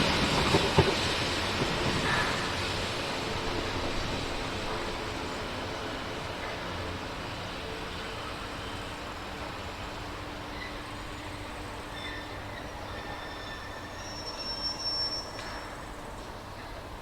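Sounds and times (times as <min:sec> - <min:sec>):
train rumbling on rails: 0:00.0 - 0:17.0
high-pitched wheel squeal: 0:11.9 - 0:15.9.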